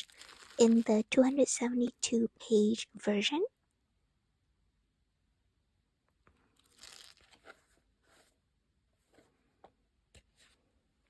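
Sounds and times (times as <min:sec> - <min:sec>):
paper notebook rustling: 0:00.0 - 0:01.0, 0:06.6 - 0:08.4.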